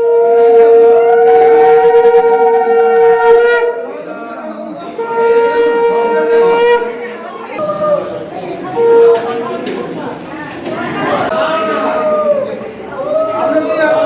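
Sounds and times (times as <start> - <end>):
conch shells blown: 0.0 - 4.2, 4.9 - 7.2, 8.8 - 9.6.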